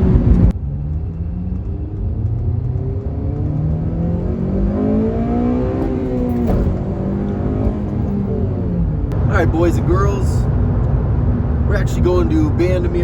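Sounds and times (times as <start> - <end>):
car engine accelerating hard: 0.0 - 12.8.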